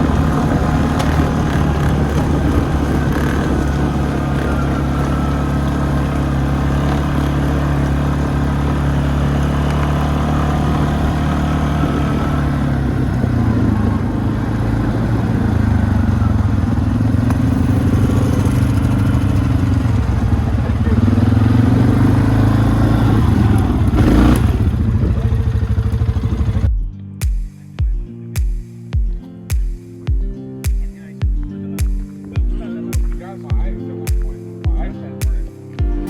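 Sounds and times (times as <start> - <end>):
quad bike engine running: 0.0 - 26.7.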